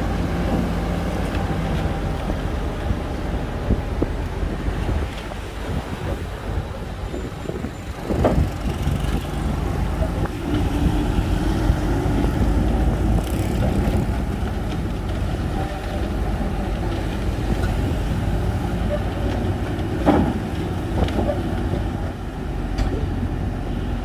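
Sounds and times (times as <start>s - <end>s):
bulldozer diesel rumble: 0.0s - 24.0s
knocks and clanks: 18.8s - 23.1s.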